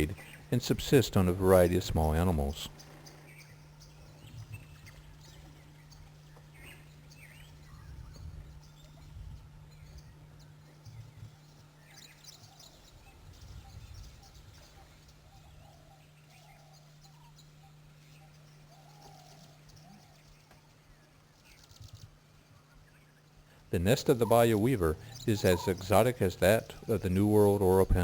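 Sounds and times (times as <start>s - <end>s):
steady low hum: 0.0s - 28.0s
low wavering calls: 22.6s - 28.0s
high bird chirps: 23.8s - 28.0s.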